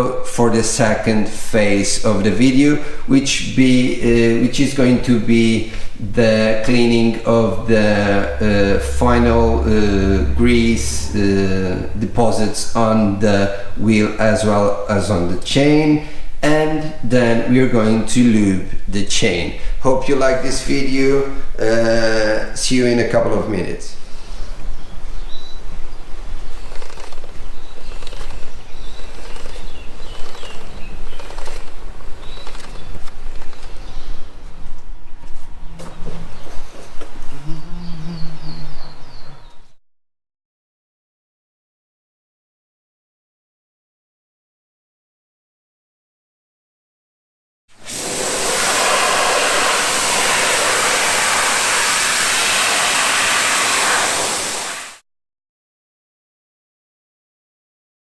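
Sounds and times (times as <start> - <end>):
low hum: 3.6 - 15.0
loud steady rushing noise: 6.5 - 13.4, 47.9 - 55.0
small birds chirping: 24.3 - 34.5, 37.3 - 39.8
pressure washer spraying water: 47.8 - 55.0.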